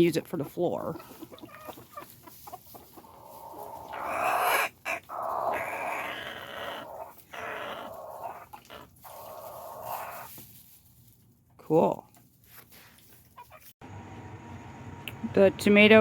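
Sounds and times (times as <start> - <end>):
chickens clucking: 0.0 - 10.6, 13.3 - 13.7.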